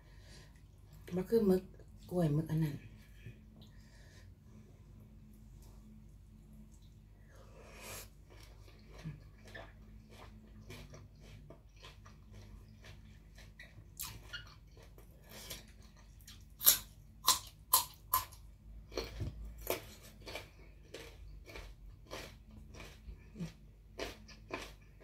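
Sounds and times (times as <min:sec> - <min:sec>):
chewing with wet mouth clicks: 0:08.3 - 0:25.0
crisp carrot crunches: 0:16.6 - 0:25.0.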